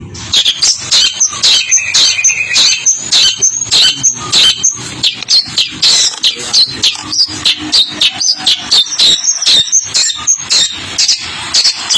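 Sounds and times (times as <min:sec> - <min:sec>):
bird singing harsh notes: 0:00.1 - 0:11.9.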